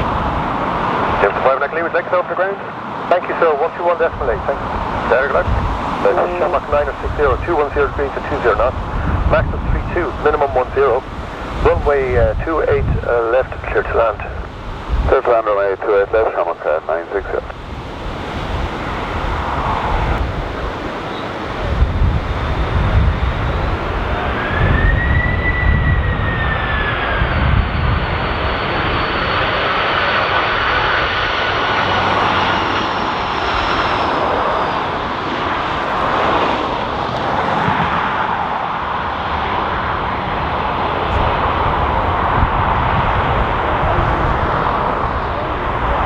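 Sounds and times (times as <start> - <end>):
jet airliner passing: 0.0 - 46.0
wind buffeting microphone: 4.0 - 15.2, 17.2 - 29.6, 35.7 - 46.0.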